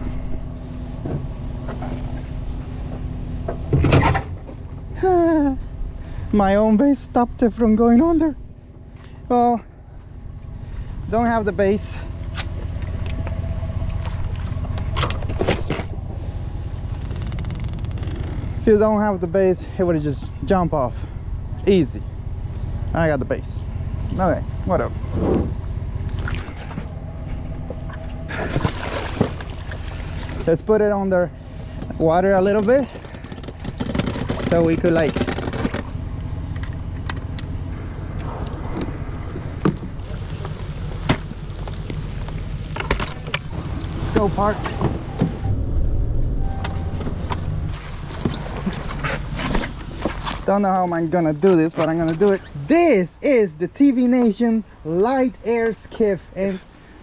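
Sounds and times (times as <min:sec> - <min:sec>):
boat motor running: 0:00.0 - 0:56.9
water and wind noise: 0:27.7 - 0:31.1, 0:38.1 - 0:50.2.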